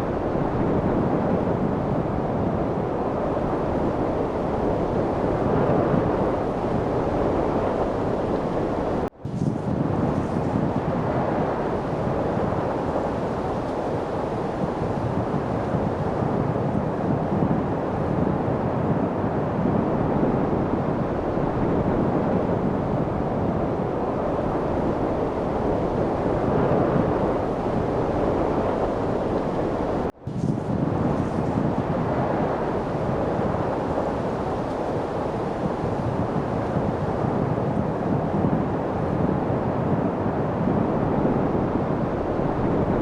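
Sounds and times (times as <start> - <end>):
steady wind noise: 0.0 - 43.0.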